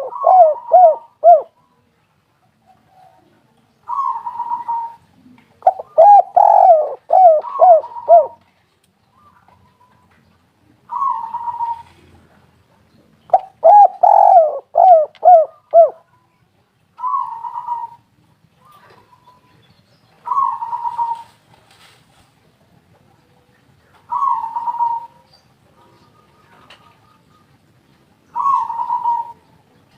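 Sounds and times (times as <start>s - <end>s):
dove cooing: 0.0s - 1.6s, 3.9s - 8.4s, 10.8s - 12.1s, 13.3s - 16.1s, 17.0s - 18.0s, 20.2s - 21.4s, 24.1s - 27.5s, 28.3s - 29.5s.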